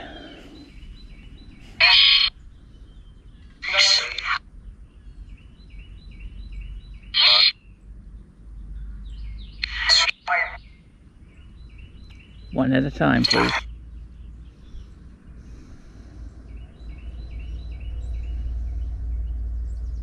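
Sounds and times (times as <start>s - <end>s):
loud harsh bird calls: 0.0s - 7.8s, 9.0s - 20.0s.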